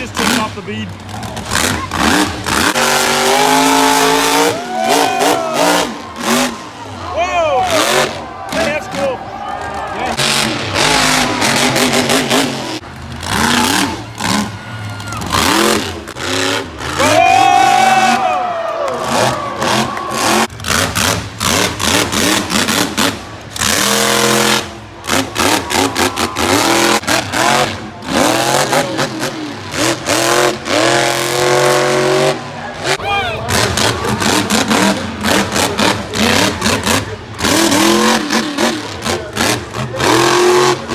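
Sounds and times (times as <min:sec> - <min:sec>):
monster truck engine revving: 0:00.0 - 0:40.9.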